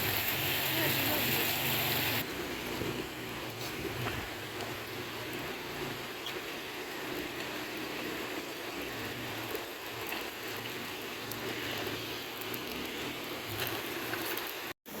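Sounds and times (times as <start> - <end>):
faint crackles: 6.2 - 14.8.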